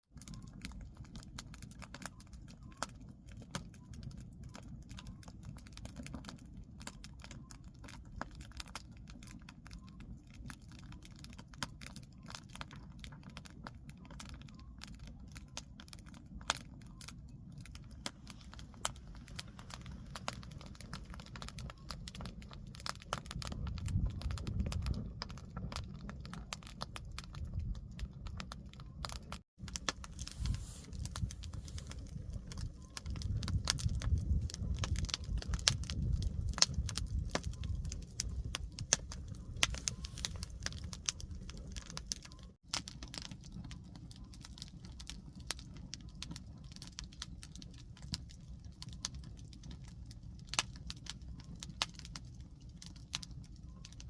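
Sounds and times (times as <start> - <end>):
firewood crackling and popping: 0.1 - 54.0
low rumble of flames: 0.1 - 54.0.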